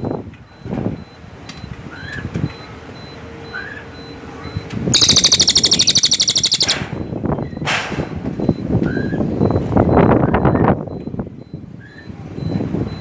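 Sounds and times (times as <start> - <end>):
songbird chirping: 5.0 - 6.8
songbird high rapid trill: 5.0 - 6.8.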